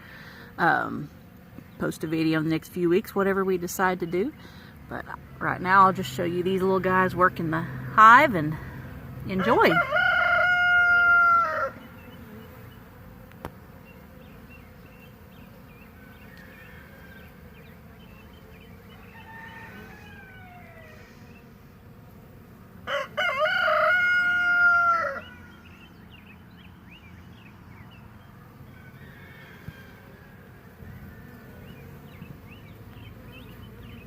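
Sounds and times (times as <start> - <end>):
bees humming: 0.0 - 34.0
rooster crowing: 9.4 - 11.9, 15.9 - 17.6, 18.9 - 21.2, 22.8 - 25.7, 28.6 - 31.6.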